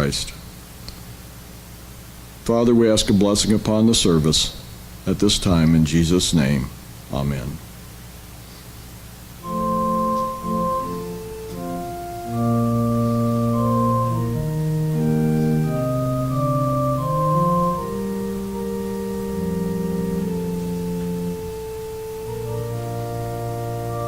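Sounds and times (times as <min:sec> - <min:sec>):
organ playing slow chords: 0:09.4 - 0:24.0.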